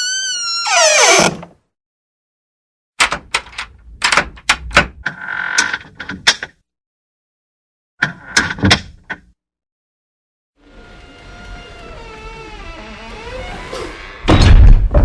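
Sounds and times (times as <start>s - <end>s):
door hinge squeak: 0.0s - 1.5s, 11.0s - 14.1s
door clicks and knocks: 3.0s - 4.9s.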